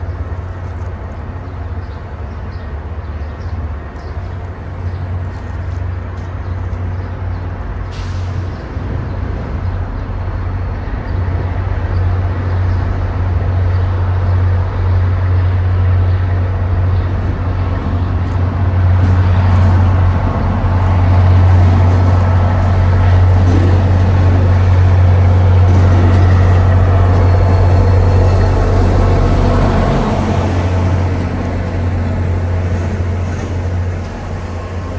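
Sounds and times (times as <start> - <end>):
locomotive diesel engine drone: 0.0 - 34.9.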